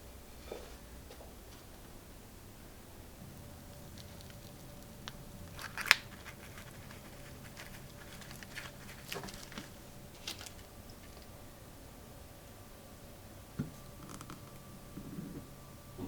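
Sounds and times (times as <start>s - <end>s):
light handling clicks and rustles: 3.7s - 11.4s.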